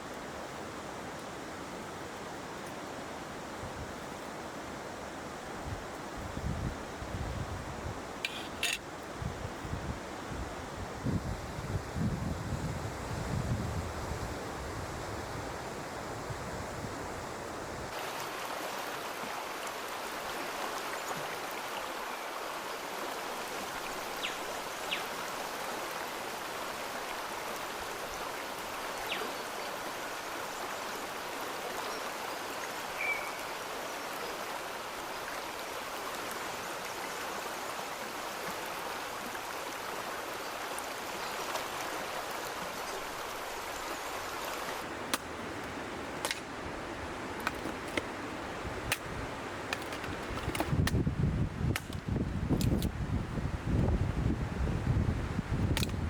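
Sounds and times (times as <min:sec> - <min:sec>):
stream water rushing: 0:00.0 - 0:06.2, 0:17.4 - 0:52.2.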